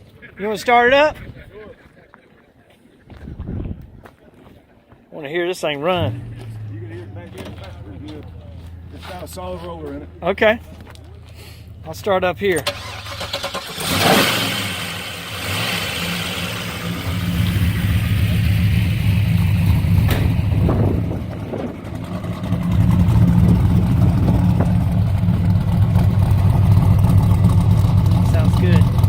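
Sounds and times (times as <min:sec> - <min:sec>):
car engine cranking and idling: 0:05.8 - 0:29.0.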